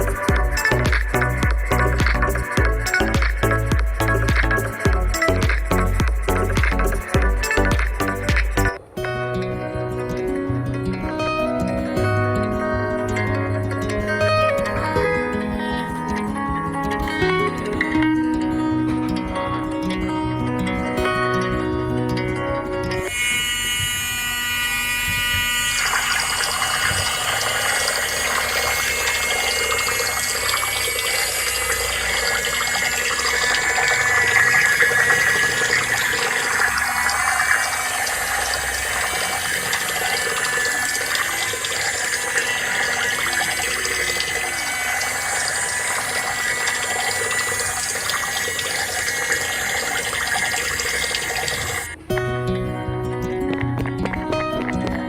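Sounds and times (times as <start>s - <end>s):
water splashing and flowing: 0.0s - 9.0s, 23.0s - 52.0s
pump motor whine: 0.0s - 9.2s, 9.8s - 52.2s.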